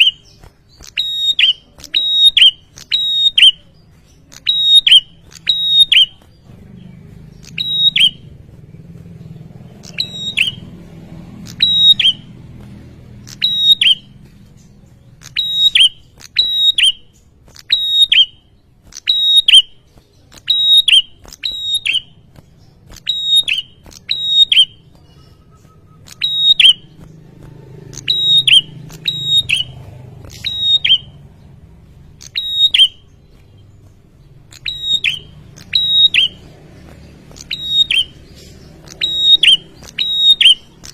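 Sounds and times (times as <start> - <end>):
songbird sharp high calls: 0.0 - 8.4, 9.8 - 10.7, 11.4 - 12.3, 13.1 - 27.2, 27.9 - 31.2, 32.1 - 40.9
faint low rumble: 6.1 - 15.4.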